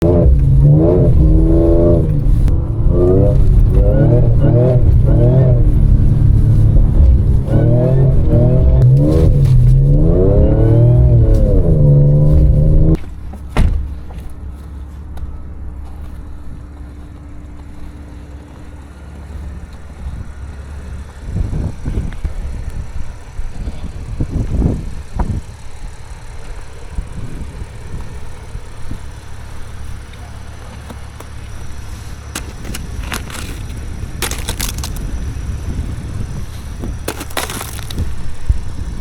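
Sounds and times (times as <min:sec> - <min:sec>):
car engine revving: 0:00.0 - 0:13.3, 0:13.9 - 0:39.0
engine low rumble: 0:00.0 - 0:39.0.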